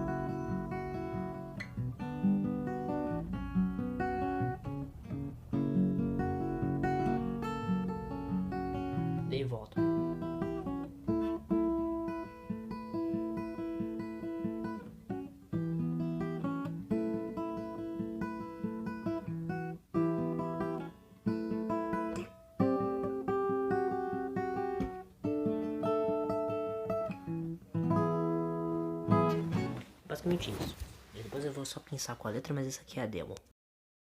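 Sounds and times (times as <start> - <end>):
acoustic guitar strumming chords: 0.0 - 30.0.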